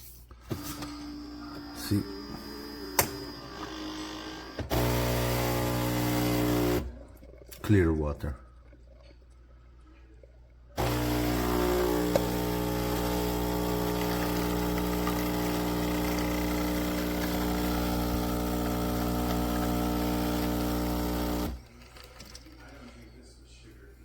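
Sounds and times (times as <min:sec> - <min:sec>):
espresso machine pump buzzing: 0:00.5 - 0:07.0, 0:10.8 - 0:22.8.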